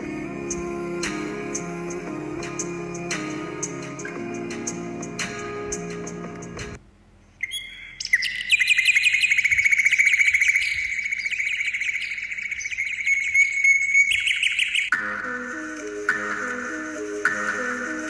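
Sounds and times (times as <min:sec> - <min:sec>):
songbird trilling: 0:07.4 - 0:14.9.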